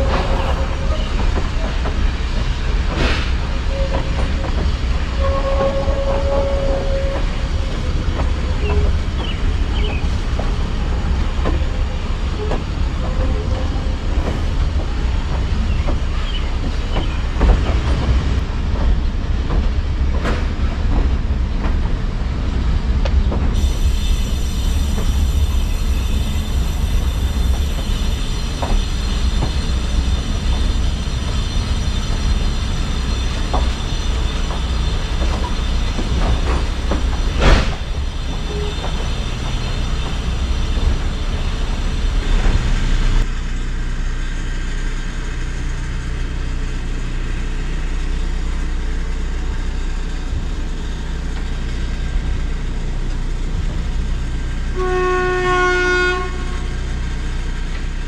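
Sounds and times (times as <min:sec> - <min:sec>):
wheels clicking over rails: 0:00.0 - 0:43.3
train running gear rumble: 0:00.0 - 0:58.0.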